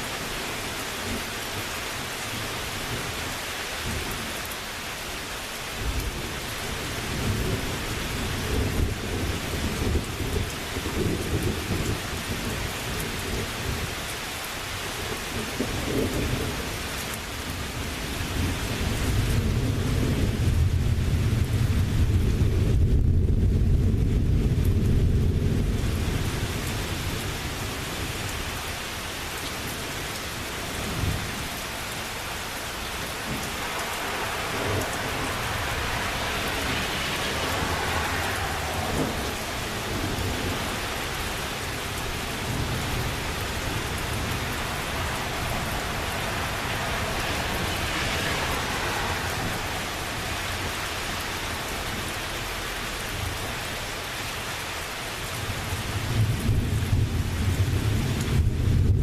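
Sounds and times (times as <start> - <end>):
rain hissing: 0.0 - 59.0
thunder rumbling: 5.8 - 14.0, 29.6 - 53.7.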